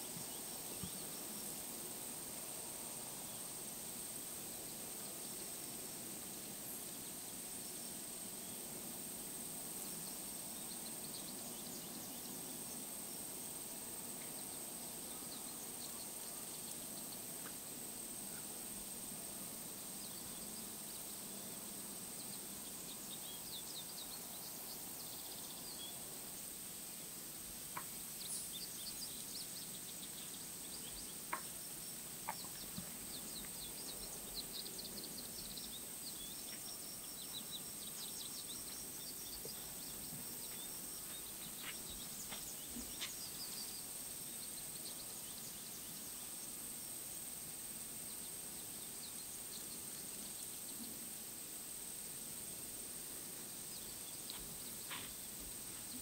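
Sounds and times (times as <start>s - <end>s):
faint steady hiss: 0.0s - 56.0s
small birds chip notes: 27.7s - 46.5s.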